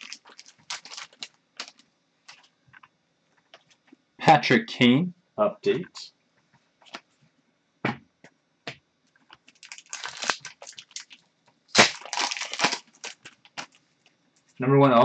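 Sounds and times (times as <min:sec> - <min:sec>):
wrapper crackling being torn: 0:00.0 - 0:02.5, 0:09.4 - 0:13.8.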